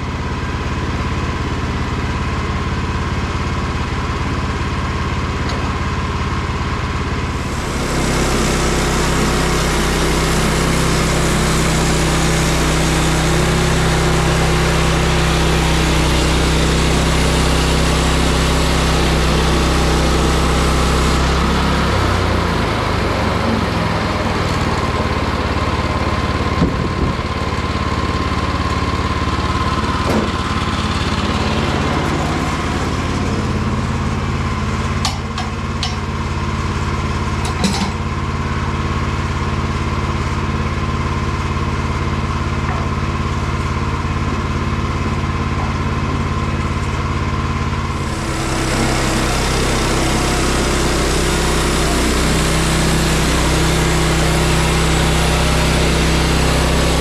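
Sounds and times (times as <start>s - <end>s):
sawmill gas engine running: 0.0s - 57.0s
saw blade cutting log: 47.8s - 57.0s.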